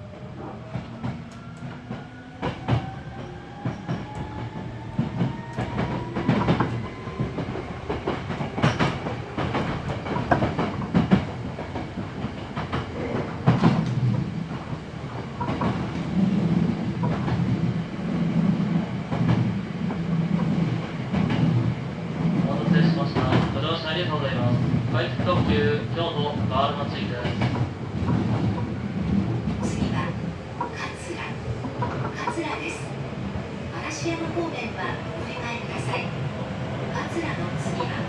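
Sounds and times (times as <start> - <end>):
electric train whine: 0.0 - 24.5
low train rumble: 0.0 - 38.0
wheels clicking over rail joints: 0.6 - 16.1.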